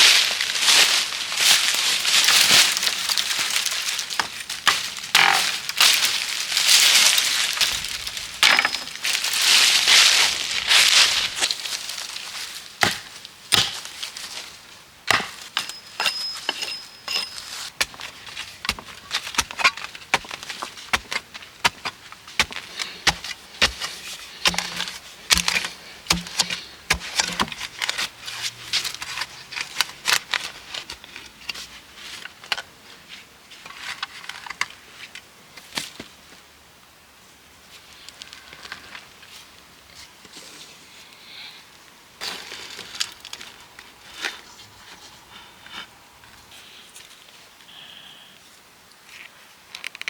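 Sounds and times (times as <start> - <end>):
wood cracking and snapping: 1.5 - 10.1, 17.8 - 28.1.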